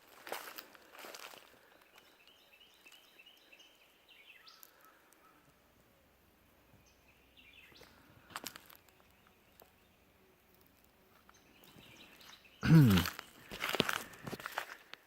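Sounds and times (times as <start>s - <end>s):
footsteps crunching over debris: 0.0s - 2.1s, 7.8s - 9.7s, 11.1s - 15.0s
faint crackles: 4.4s - 5.6s, 7.7s - 15.0s.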